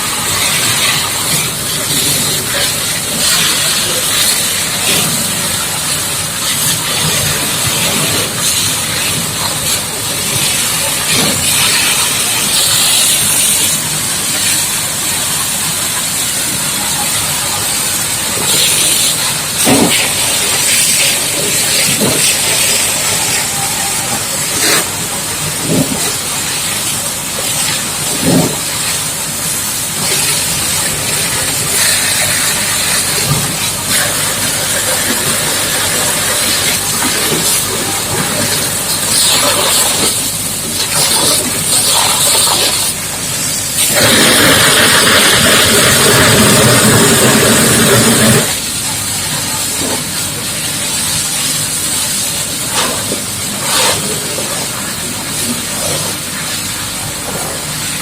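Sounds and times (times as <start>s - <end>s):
high-pressure water jet hissing: 0.0s - 58.0s.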